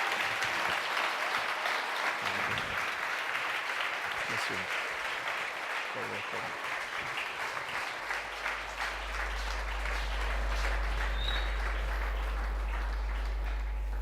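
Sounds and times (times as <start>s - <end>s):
congregation applauding: 0.0s - 14.0s
steady low hum: 7.9s - 14.0s.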